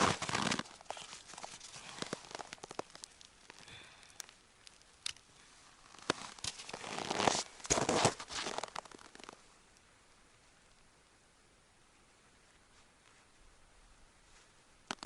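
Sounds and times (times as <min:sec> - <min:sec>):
rustling and crackling handling noise: 0:00.0 - 0:09.5.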